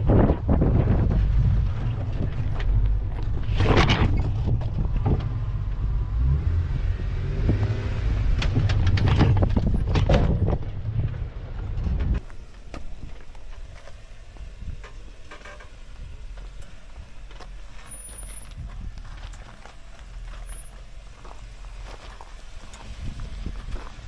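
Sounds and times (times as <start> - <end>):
knocks and clatter over rocks: 0.0 - 5.6, 8.3 - 13.9
off-road vehicle engine rumbling: 0.0 - 24.0.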